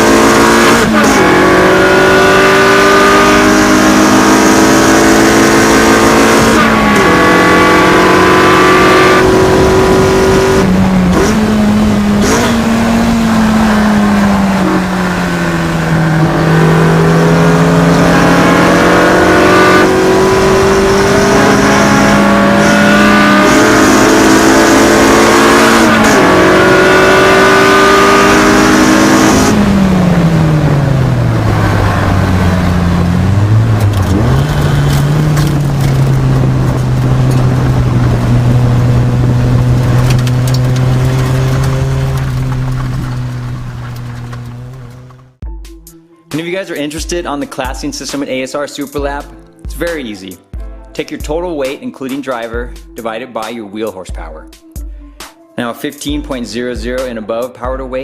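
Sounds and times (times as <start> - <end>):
race car engine revving: 0.0 - 45.4.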